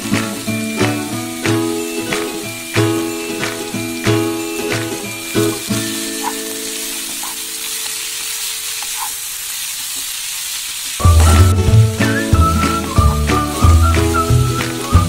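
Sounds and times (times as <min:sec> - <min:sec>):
background music: 0:00.0 - 0:07.7, 0:11.0 - 0:15.0
bamboo shoots sizzling in a pan: 0:00.0 - 0:15.0.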